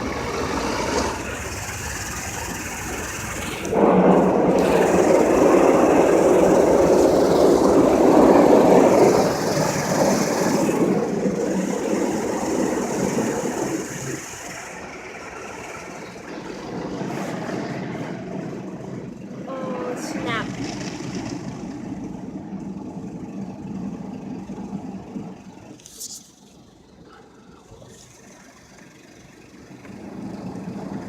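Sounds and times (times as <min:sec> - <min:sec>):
water jets spraying car: 0:00.0 - 0:31.0.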